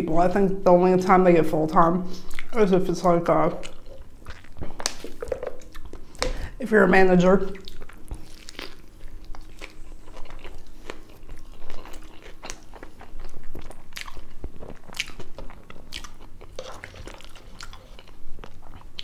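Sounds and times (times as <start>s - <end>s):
chewing with wet mouth clicks: 2.2s - 2.6s, 3.5s - 6.5s, 7.5s - 19.0s.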